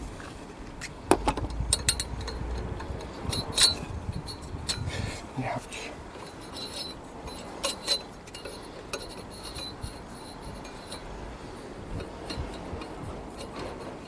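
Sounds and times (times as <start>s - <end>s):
metal tools clinking: 1.7s - 4.9s, 6.1s - 11.1s.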